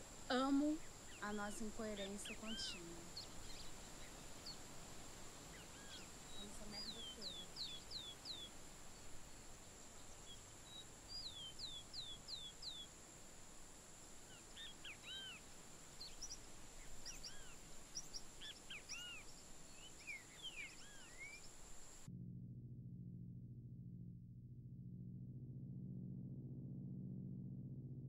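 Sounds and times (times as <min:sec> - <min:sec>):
low hum: 0:00.0 - 0:28.0
short arched bird chirps: 0:05.4 - 0:09.4, 0:10.0 - 0:12.9, 0:14.3 - 0:21.9
descending bird whistles: 0:14.3 - 0:15.4, 0:16.0 - 0:21.6.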